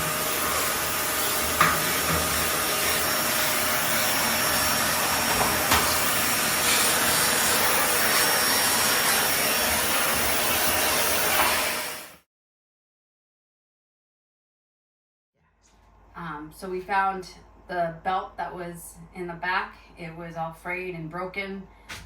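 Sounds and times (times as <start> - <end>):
vacuum cleaner running: 0.0 - 12.2.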